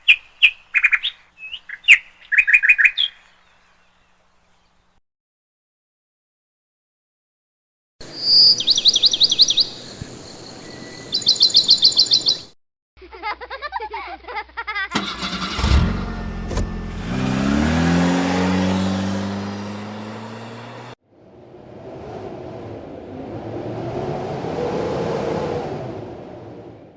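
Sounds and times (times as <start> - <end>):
songbird trilling: 0.0 - 4.0, 8.1 - 12.5
vehicle engine revving: 14.9 - 21.0.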